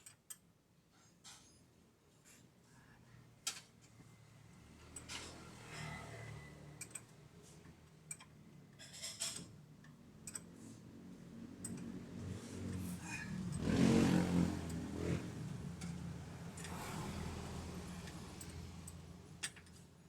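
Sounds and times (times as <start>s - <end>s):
metallic clicks and clinks: 17.5s - 19.9s.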